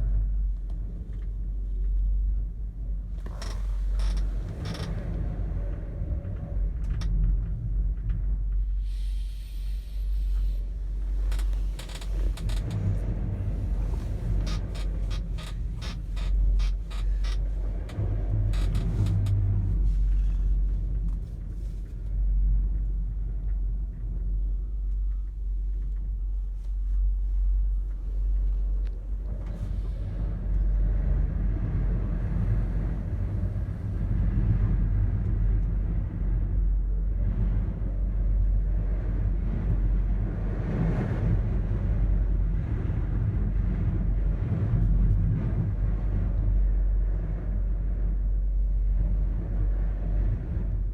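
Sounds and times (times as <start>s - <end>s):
high wind buffeting: 10.7s - 21.6s.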